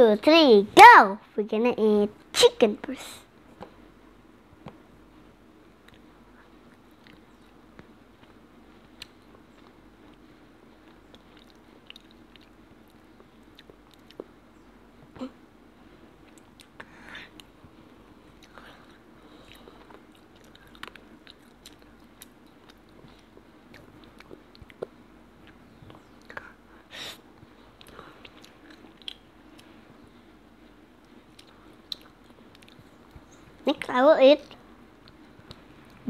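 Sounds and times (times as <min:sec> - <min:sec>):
faint steady hum: 0:00.0 - 0:36.0
child chewing: 0:05.8 - 0:14.4, 0:16.2 - 0:36.0
wet mouth clicks and smacks: 0:27.8 - 0:29.7, 0:31.3 - 0:32.8.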